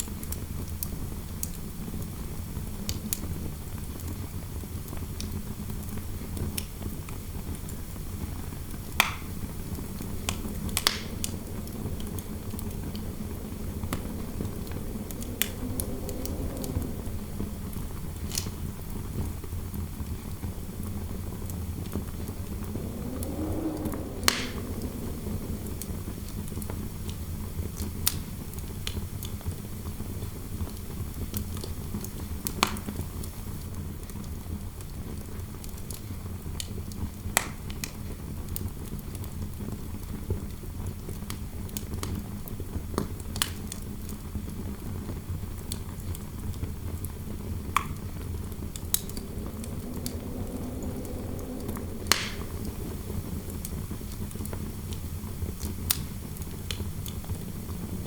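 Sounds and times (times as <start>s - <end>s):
low rumble of wind: 0.0s - 58.0s
soft wind howl: 5.4s - 30.5s, 43.4s - 58.0s
fireplace crackling: 8.9s - 19.4s, 20.6s - 27.1s, 47.0s - 54.5s.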